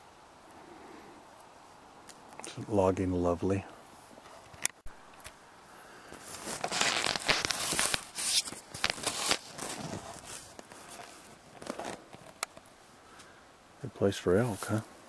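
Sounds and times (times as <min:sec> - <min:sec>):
footsteps crunching through undergrowth: 0:06.2 - 0:12.1.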